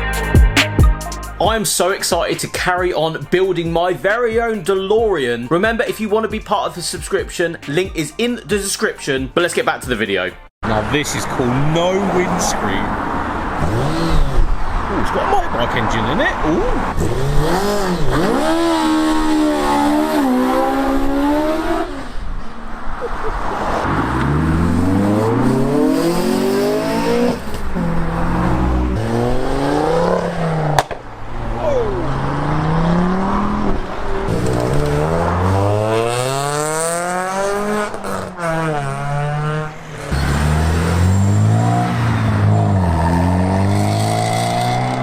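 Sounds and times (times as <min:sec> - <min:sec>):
cars accelerating hard: 0:10.6 - 0:45.0.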